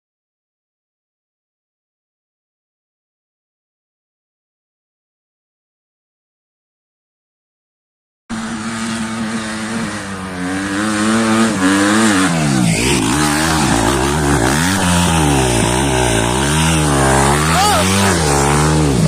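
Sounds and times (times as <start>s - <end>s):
motorcycle engine revving: 8.3s - 19.0s.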